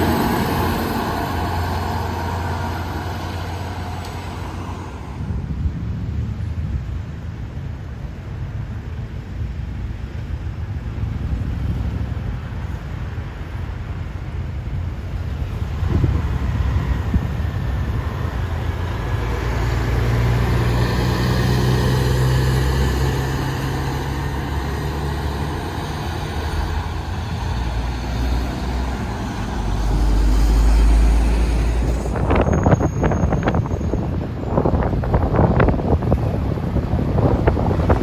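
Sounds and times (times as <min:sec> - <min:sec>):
diesel truck driving past: 0:00.0 - 0:06.6, 0:14.7 - 0:38.0
deep engine rumble: 0:00.0 - 0:38.0.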